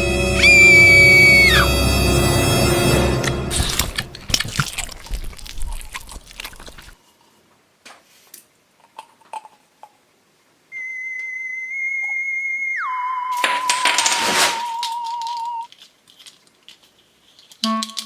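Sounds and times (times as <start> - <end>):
high electronic toy tone: 0.0 - 2.0, 14.6 - 15.7
plastic crackling and clicking: 13.4 - 18.0.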